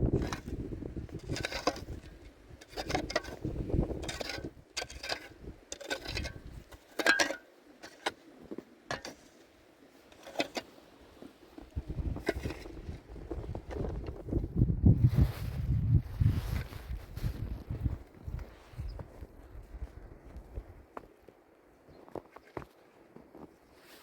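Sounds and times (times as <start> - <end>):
knocks and scrapes: 0.0 - 9.3, 10.1 - 14.4.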